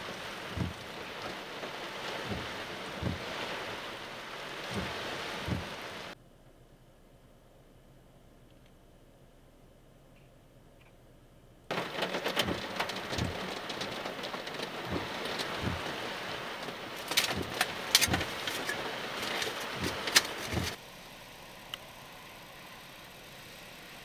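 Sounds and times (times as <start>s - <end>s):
heavy rain pouring: 0.0s - 6.2s, 11.7s - 20.8s
raindrops tapping: 0.0s - 6.2s, 11.7s - 20.8s
faint steady hiss: 0.0s - 24.0s.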